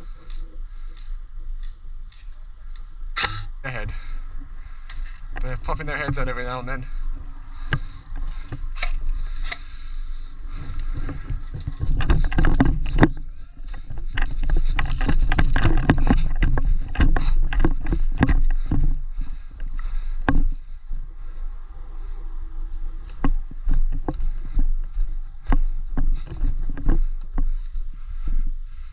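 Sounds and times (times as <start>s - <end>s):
heavy low rumble: 0.0s - 28.9s
sharp irregular clicks and knocks: 4.7s - 21.4s, 23.0s - 28.9s.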